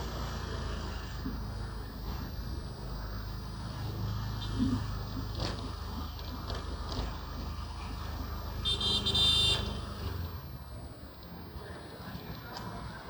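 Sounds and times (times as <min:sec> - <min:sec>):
high-pitched horn beep: 0:08.6 - 0:10.2.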